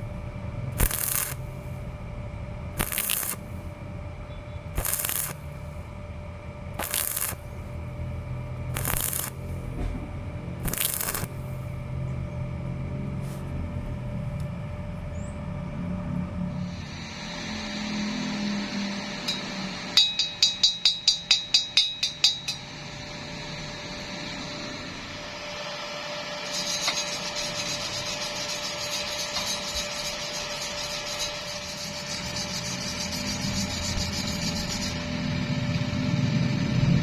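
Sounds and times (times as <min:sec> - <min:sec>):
hammer tapping steel: 0:19.2 - 0:22.8.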